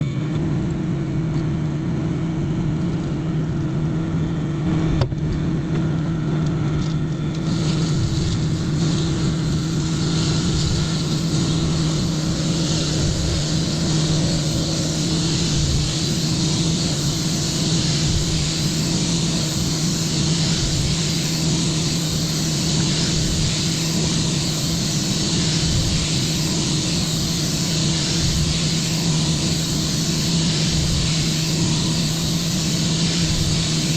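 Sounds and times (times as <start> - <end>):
microwave oven humming: 0.0 - 33.9
steady hiss: 7.0 - 33.9.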